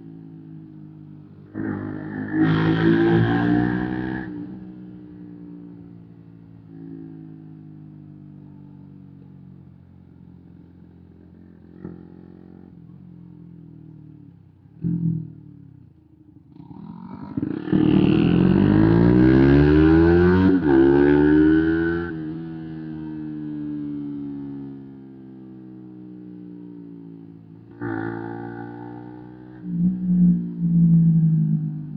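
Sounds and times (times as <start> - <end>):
motorcycle accelerating hard: 1.4 - 5.4, 16.5 - 26.2, 27.6 - 31.9.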